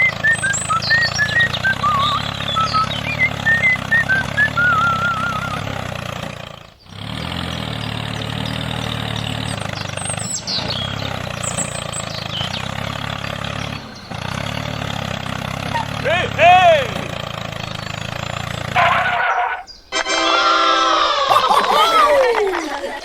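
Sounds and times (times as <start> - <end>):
warbling chirps: 0.0 - 5.6
tractor engine idling: 0.0 - 23.0.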